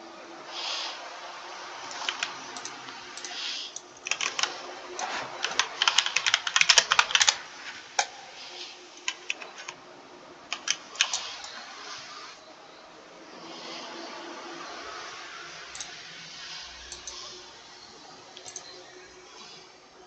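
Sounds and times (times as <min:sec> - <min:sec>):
typing on computer keyboard: 0:01.9 - 0:07.4, 0:09.0 - 0:09.8, 0:10.5 - 0:11.6, 0:15.7 - 0:16.0, 0:18.4 - 0:18.8.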